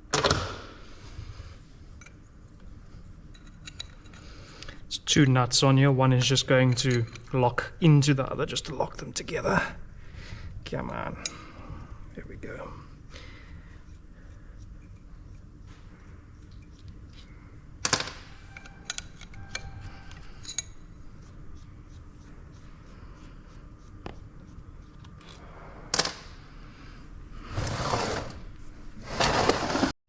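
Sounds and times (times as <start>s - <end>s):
metal parts clicking and clinking: 16.5s - 20.9s.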